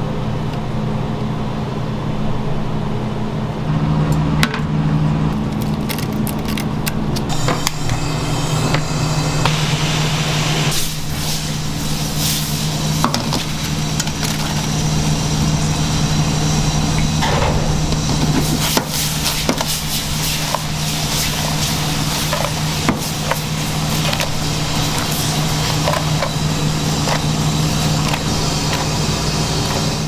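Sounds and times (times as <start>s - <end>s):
low machine hum: 0.0s - 30.0s
sharp knocks and clatters: 17.2s - 19.8s.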